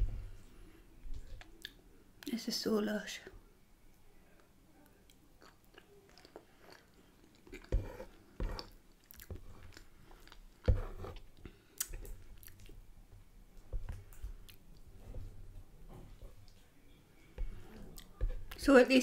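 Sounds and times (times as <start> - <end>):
chewing soft food: 4.3 - 12.9, 13.5 - 18.6.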